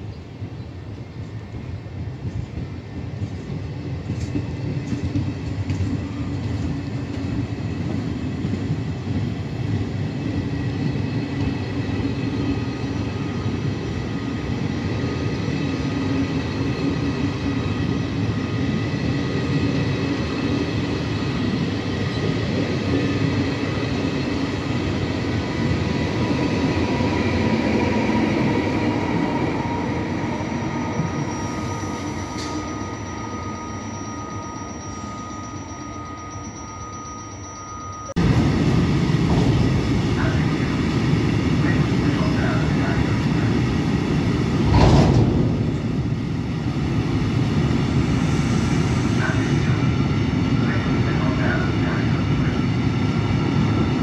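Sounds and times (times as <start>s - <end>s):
train wheels rolling on rails: 2.0s - 54.0s
electric locomotive whining: 3.0s - 54.0s.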